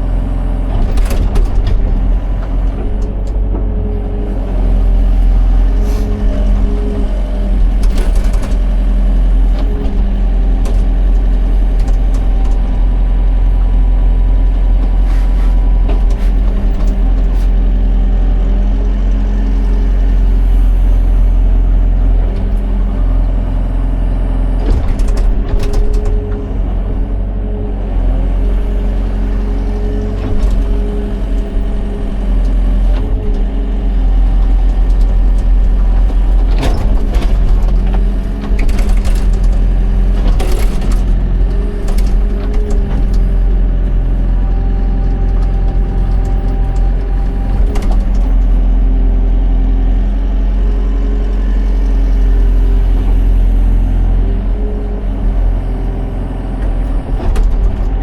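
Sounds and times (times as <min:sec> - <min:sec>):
excavator engine running: 0:00.0 - 0:58.0.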